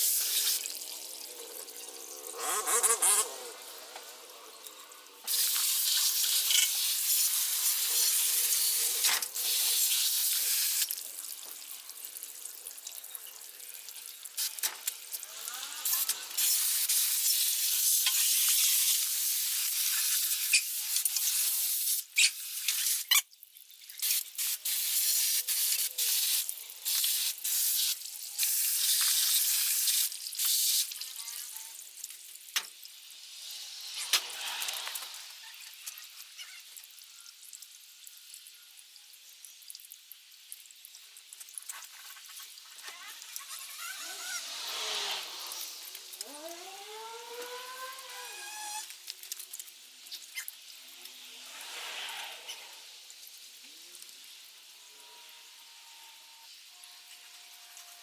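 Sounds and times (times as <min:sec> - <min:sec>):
hissing spray: 0:43.6 - 0:48.9.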